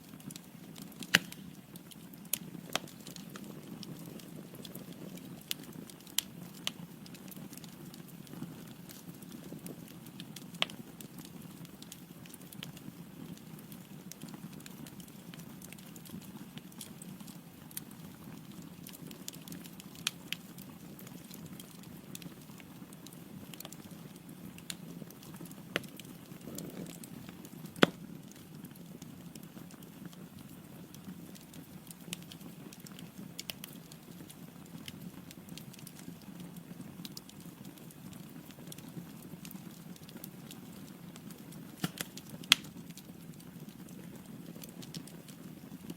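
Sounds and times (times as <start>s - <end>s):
fire flames rumbling: 0.0s - 45.9s
wood crackling and popping: 0.0s - 45.9s.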